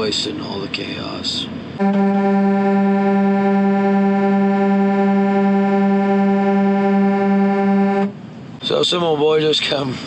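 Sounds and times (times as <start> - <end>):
steady buzzy pitched tone: 1.8 - 8.2.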